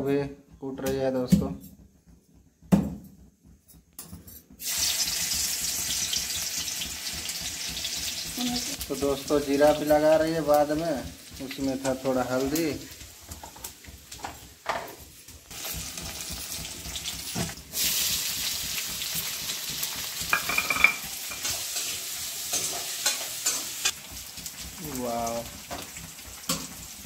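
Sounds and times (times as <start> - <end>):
onions sizzling in hot oil: 4.6 - 27.0
metal spatula scraping pan: 20.4 - 24.0.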